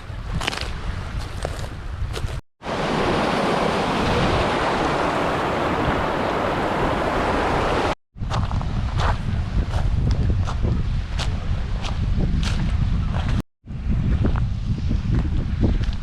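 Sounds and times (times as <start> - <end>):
rushing water: 2.6 - 8.0.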